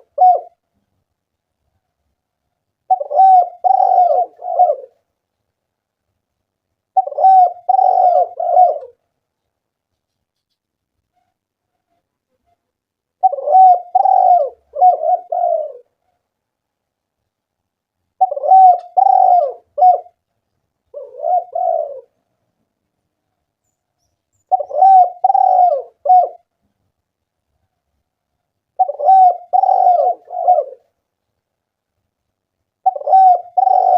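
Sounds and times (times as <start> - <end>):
dove cooing: 0.0 - 0.6, 2.9 - 5.0, 6.9 - 9.0, 13.2 - 16.0, 18.2 - 20.2, 20.9 - 22.2, 24.4 - 26.5, 28.7 - 31.0, 32.8 - 33.9.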